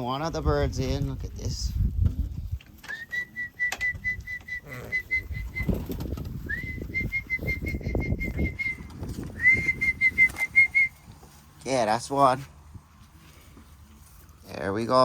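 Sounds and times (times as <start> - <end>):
low rustling and scuffing: 5.2 - 14.6
whistled recall calls: 6.5 - 11.0.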